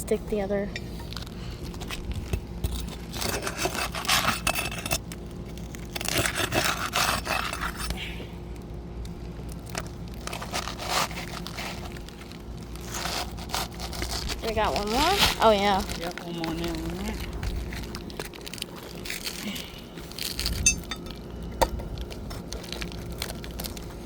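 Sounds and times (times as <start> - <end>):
tool scraping under roof shingles: 1.1 - 5.2.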